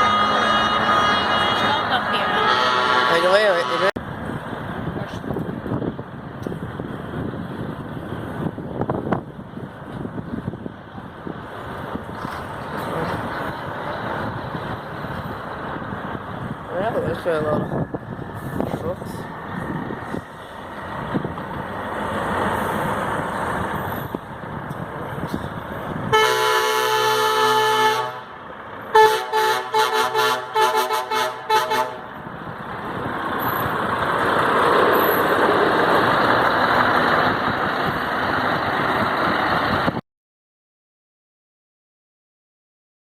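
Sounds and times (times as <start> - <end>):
truck air horn: 0.0 - 3.9, 26.1 - 32.1
truck engine and road noise: 0.0 - 40.0.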